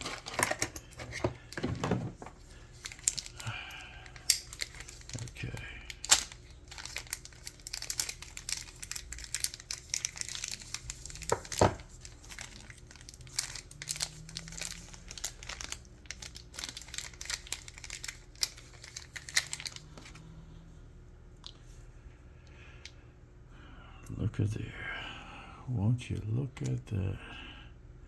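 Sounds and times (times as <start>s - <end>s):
crinkly packaging being unwrapped: 0.0s - 20.3s.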